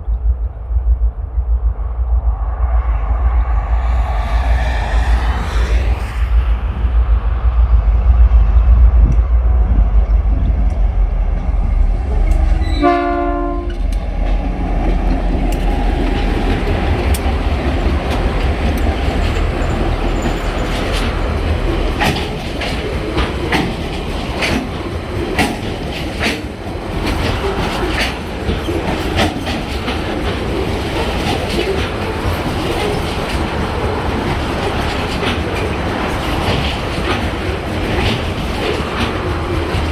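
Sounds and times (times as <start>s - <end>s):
diesel locomotive engines: 0.0s - 39.9s
train horn: 12.3s - 13.9s
wheels clicking over rail joints: 13.7s - 39.9s.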